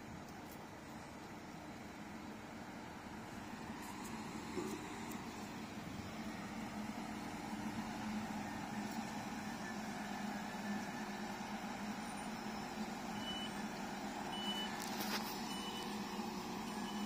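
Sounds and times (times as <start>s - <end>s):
diesel train humming: 0.0s - 17.0s
short high door beeps: 14.3s - 14.8s.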